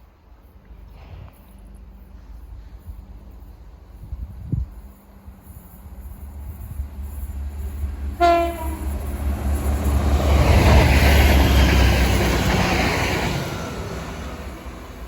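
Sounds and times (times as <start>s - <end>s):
train wheels rushing on rail: 0.0s - 15.0s
train horn blast: 8.1s - 9.0s.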